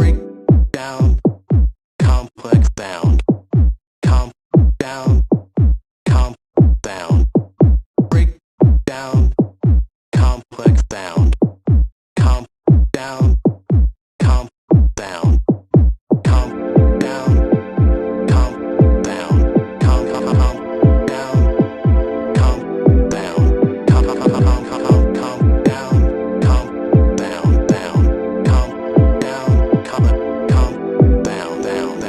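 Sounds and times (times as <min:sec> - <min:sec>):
sustained synth chord: 0:00.0 - 0:00.5, 0:16.4 - 0:32.0
deep kick drums: 0:00.0 - 0:03.8, 0:04.6 - 0:10.8, 0:12.7 - 0:31.2.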